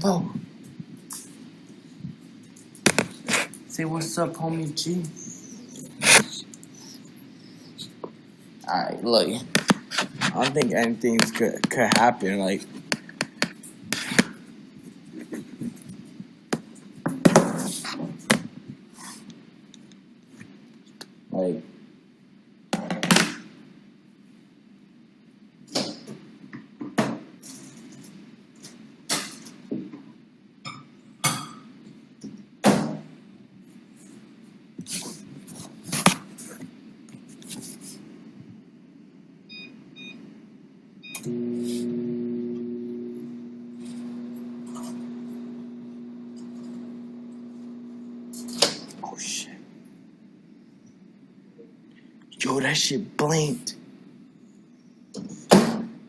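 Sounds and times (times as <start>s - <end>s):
microwave oven humming: 41.0s - 49.1s.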